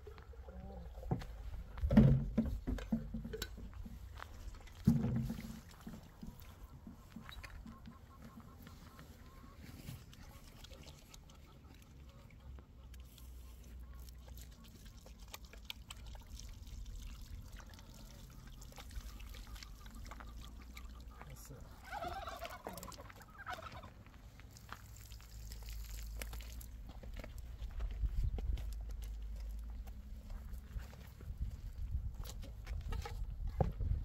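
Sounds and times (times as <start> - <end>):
farm bird call: 5.6 - 14.2, 18.0 - 24.0.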